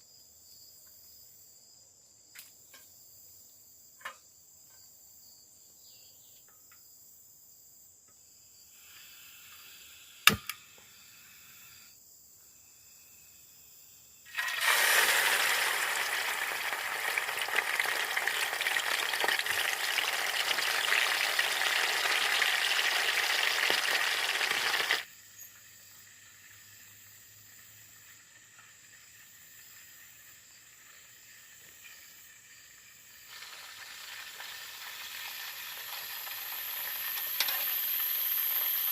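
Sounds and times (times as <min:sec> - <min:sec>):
high insect drone: 0:08.2 - 0:38.9
sharp click: 0:10.3 - 0:10.6
food sizzling in hot oil: 0:14.3 - 0:25.1, 0:28.0 - 0:38.9.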